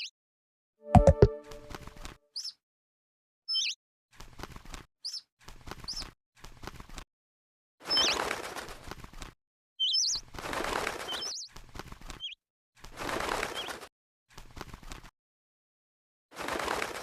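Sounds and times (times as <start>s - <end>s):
small bird chirping: 2.3s - 2.6s, 3.5s - 3.8s, 5.0s - 5.3s, 5.9s - 6.1s, 9.8s - 10.3s, 11.1s - 11.5s, 12.2s - 12.4s
rustling noise: 14.3s - 15.1s.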